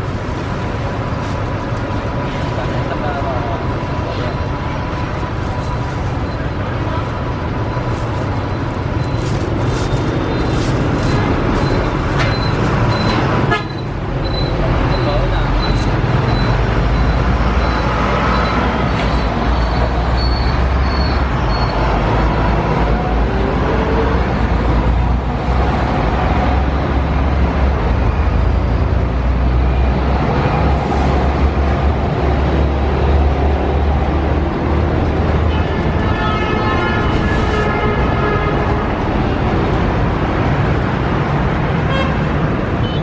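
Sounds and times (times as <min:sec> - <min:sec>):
road traffic rumble: 0:00.0 - 0:43.0.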